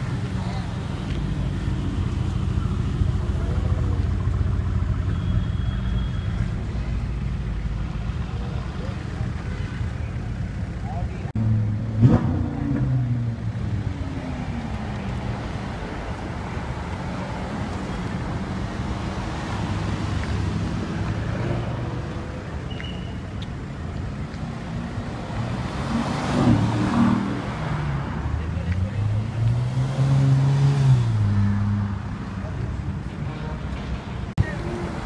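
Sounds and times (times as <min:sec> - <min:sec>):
engine revving: 0:11.4 - 0:14.6.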